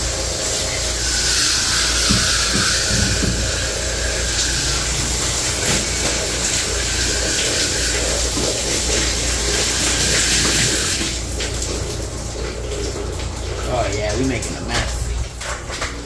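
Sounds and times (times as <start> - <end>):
water spraying from hose: 0.0 - 16.0.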